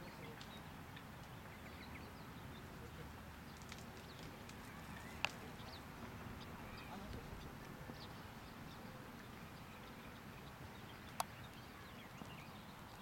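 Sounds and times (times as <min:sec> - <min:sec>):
faint bird chirps: 0:04.7 - 0:13.0.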